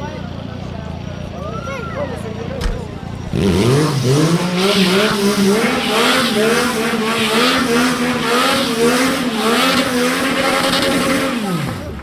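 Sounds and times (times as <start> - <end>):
motorcycle engine at high revs: 2.2 - 12.0.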